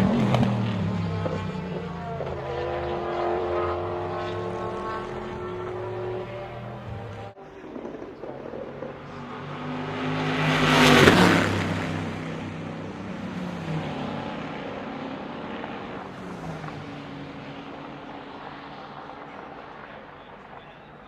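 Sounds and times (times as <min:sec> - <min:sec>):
distant race car engines: 0:00.0 - 0:21.0
race car passing at speed: 0:00.0 - 0:21.0.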